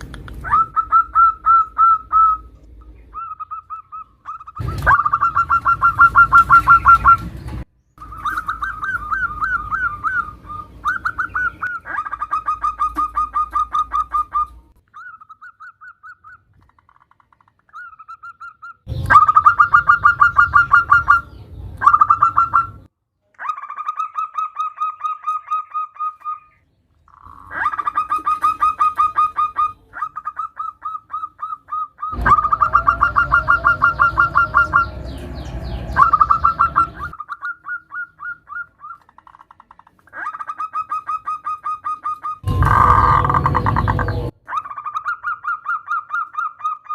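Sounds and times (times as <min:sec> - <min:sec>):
dove cooing in trills: 0:00.3 - 0:02.5, 0:03.1 - 0:07.2, 0:08.0 - 0:15.1, 0:27.4 - 0:39.0.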